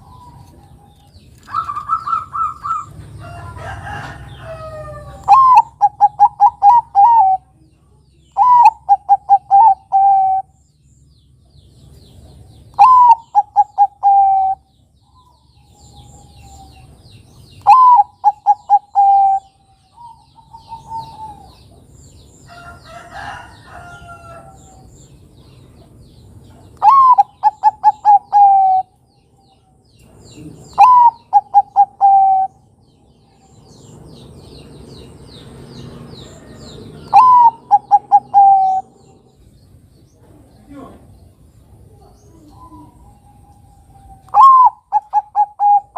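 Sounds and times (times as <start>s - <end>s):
dove cooing: 0.0s - 3.1s, 4.6s - 7.5s, 8.4s - 10.6s, 12.8s - 14.7s, 17.6s - 21.8s, 26.8s - 29.0s, 30.3s - 32.6s, 36.4s - 39.2s, 42.0s - 45.9s.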